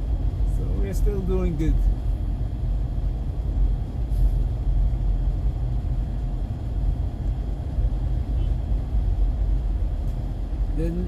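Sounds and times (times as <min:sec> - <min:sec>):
car driving rumble: 0:00.0 - 0:11.0
brief hiss: 0:04.1 - 0:04.5.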